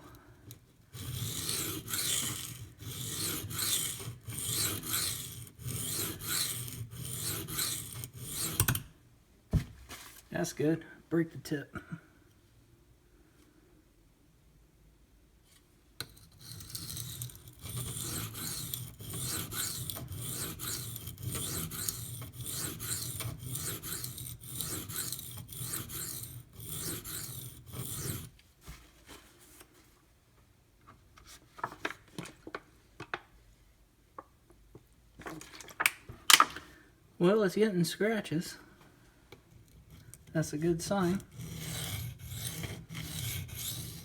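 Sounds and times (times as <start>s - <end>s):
knife scraping on sharpening stone: 1.0s - 8.8s, 16.1s - 28.3s, 41.0s - 44.0s.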